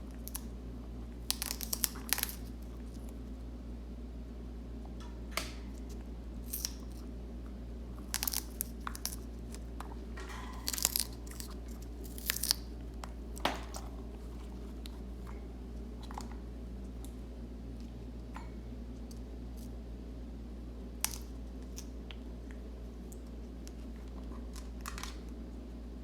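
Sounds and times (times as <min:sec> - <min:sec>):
parrot crunching cabbage leaf: 0:00.0 - 0:03.3, 0:05.7 - 0:17.2, 0:21.0 - 0:25.4
steady low hum: 0:00.0 - 0:26.0.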